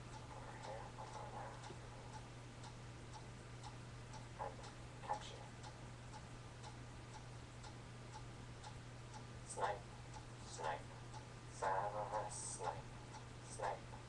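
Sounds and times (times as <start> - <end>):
clock ticking: 0.0 - 14.0
steady low hum: 0.0 - 14.0.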